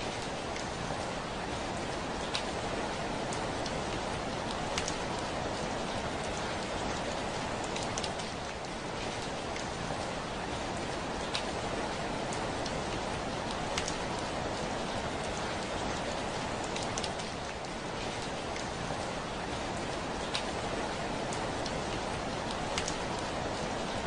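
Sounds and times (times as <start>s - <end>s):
heavy rain on a window: 0.0s - 24.0s
raindrops ticking on glass: 12.3s - 14.5s, 21.3s - 23.1s.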